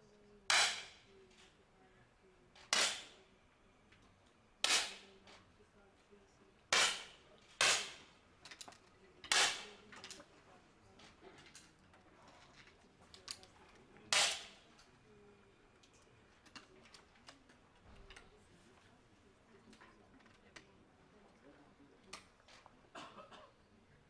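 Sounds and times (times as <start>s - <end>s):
air pistol shots: 0.5s - 1.0s, 2.7s - 3.1s, 4.6s - 5.0s, 6.7s - 8.0s, 9.3s - 9.7s, 14.1s - 14.6s.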